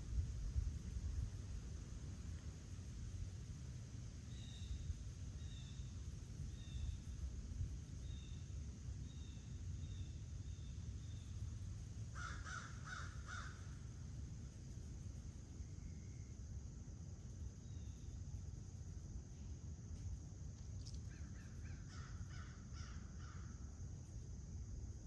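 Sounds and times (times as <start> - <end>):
steady low rumble: 0.0 - 4.2
small bird chirping: 4.3 - 5.9, 8.0 - 11.4, 17.3 - 18.2
crow cawing: 12.2 - 13.8.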